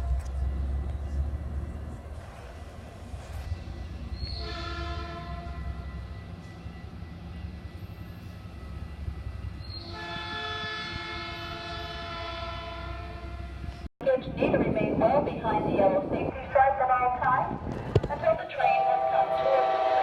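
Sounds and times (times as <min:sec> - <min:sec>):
train air horn blasts: 0:04.3 - 0:05.9, 0:09.8 - 0:13.7, 0:18.8 - 0:20.0.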